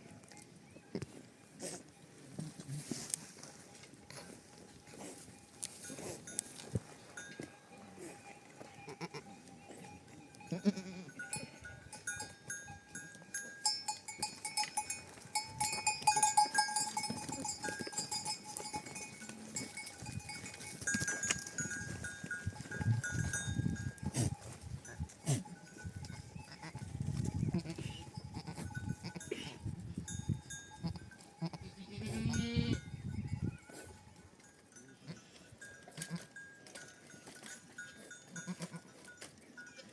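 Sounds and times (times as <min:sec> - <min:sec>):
animal neck bells clinking: 0:03.5 - 0:39.9
goat or sheep calling: 0:07.9 - 0:11.5, 0:25.2 - 0:26.9, 0:27.5 - 0:29.6, 0:30.8 - 0:32.9, 0:38.4 - 0:38.9.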